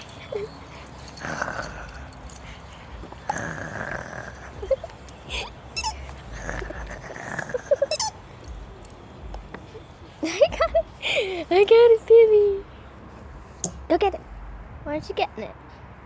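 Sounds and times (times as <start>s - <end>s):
dog whimpering: 0.0s - 8.2s
dog growling in play: 0.1s - 8.1s.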